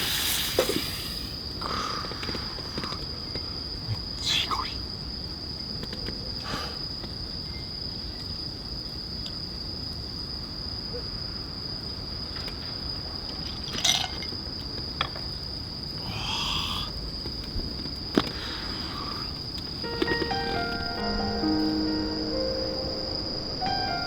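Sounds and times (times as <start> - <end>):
insect high-pitched trill: 18.9 - 24.0.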